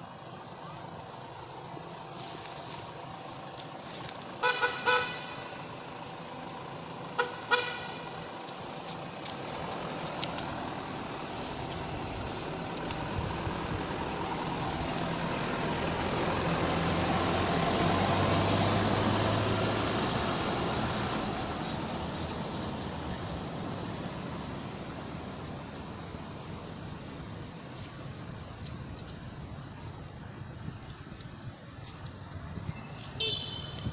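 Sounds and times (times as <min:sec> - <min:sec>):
motor vehicle passing: 0:01.8 - 0:26.0
vehicle horn toots: 0:04.4 - 0:05.5, 0:07.2 - 0:08.1, 0:33.2 - 0:33.9.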